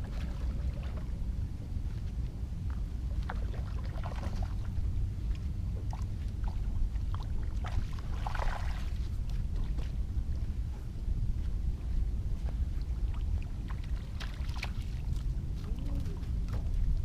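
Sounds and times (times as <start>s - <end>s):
water splashing and lapping: 0.0s - 17.0s
wind rumble on microphone: 0.0s - 17.0s.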